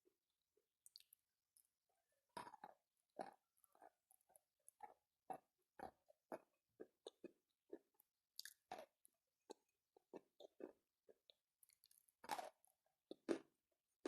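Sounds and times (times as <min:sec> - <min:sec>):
close-up chewing: 0:02.4 - 0:13.5.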